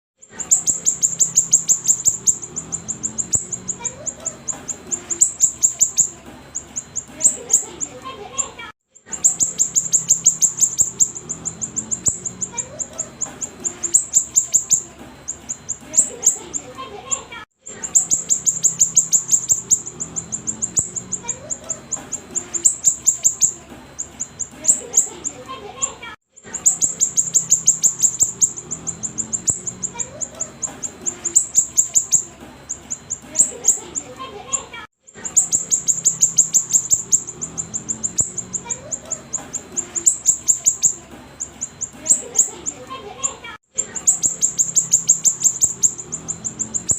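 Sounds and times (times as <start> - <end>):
songbird singing fast chirps: 0.2 - 8.0, 9.0 - 16.8, 17.8 - 25.4, 26.5 - 34.2, 35.2 - 46.9.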